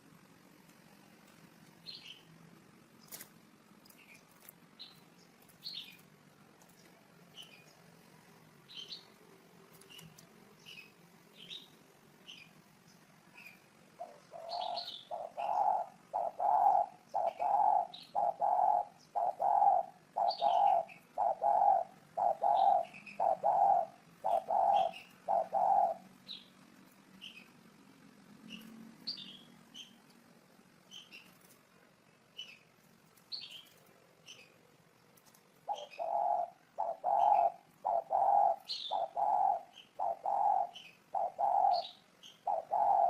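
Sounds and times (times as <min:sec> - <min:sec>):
small bird chirping: 0:00.6 - 0:43.0
dove cooing: 0:13.4 - 0:26.2, 0:35.6 - 0:43.0.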